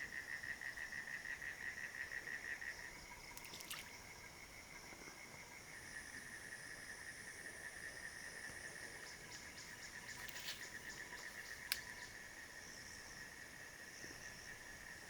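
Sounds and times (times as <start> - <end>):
insects pulsing chorus: 0.0 - 15.0
faint ticks: 3.3 - 4.0, 9.5 - 12.2.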